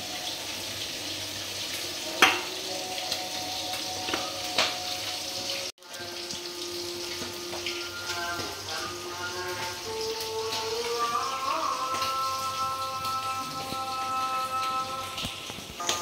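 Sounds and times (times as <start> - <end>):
food sizzling in hot oil: 0.0 - 16.0
cookware clinking: 2.2 - 2.6.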